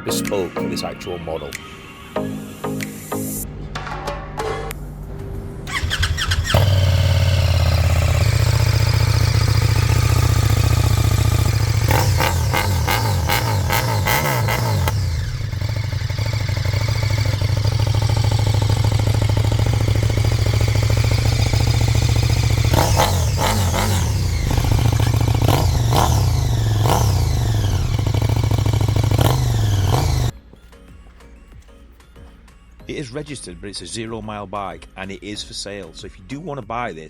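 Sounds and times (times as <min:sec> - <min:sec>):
motorcycle engine revving: 0:05.6 - 0:30.4.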